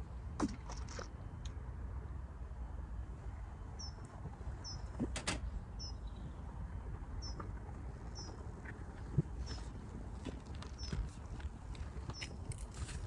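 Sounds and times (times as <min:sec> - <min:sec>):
small bird chirping: 0:03.8 - 0:04.9, 0:05.7 - 0:06.4, 0:07.2 - 0:07.4, 0:08.1 - 0:08.4.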